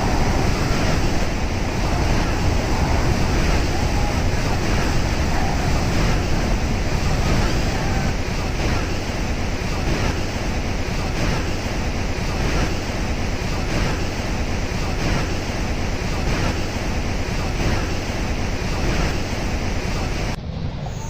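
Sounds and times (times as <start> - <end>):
waterfall roaring: 0.0 - 20.4
wind buffeting microphone: 0.0 - 21.0.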